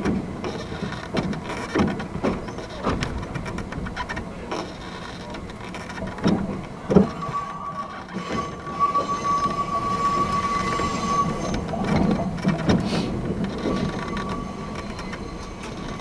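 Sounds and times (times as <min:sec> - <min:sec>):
train rumbling clatter: 0:00.0 - 0:16.0
train brakes squealing: 0:06.4 - 0:16.0.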